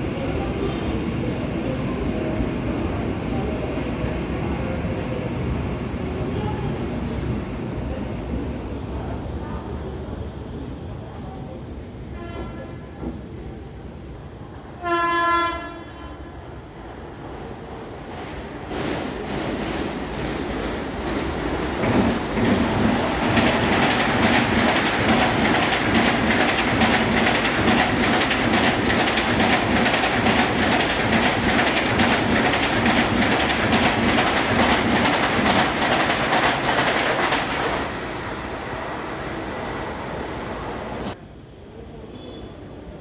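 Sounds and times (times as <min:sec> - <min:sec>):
train rumble: 0:00.0 - 0:41.2
train wheels clattering: 0:18.2 - 0:41.2.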